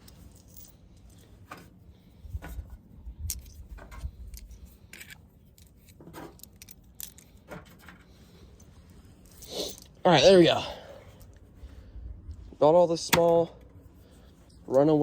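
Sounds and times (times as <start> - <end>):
metal parts and tools clinking: 0.0 - 10.4.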